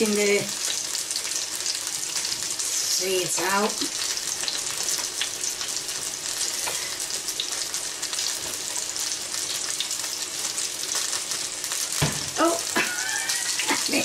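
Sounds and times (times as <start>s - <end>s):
chicken sizzling in a pan: 0.0s - 14.0s.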